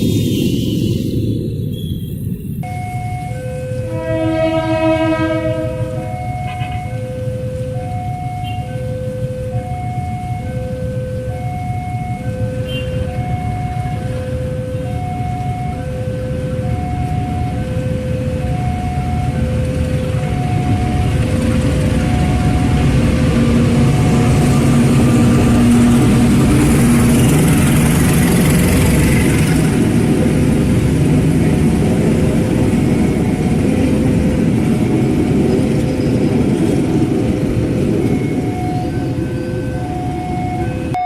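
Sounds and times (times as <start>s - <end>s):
diesel locomotive rumble: 0.0s - 41.0s
two-note electronic warning tone: 2.6s - 23.0s, 38.0s - 41.0s.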